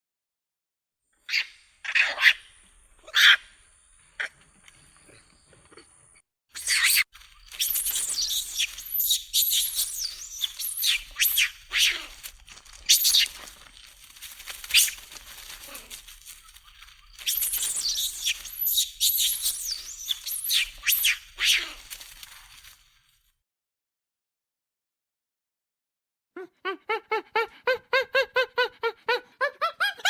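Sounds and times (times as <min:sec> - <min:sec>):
shrill animal squeals: 0:01.3 - 0:02.4, 0:03.0 - 0:03.5, 0:06.6 - 0:13.5, 0:17.2 - 0:22.3.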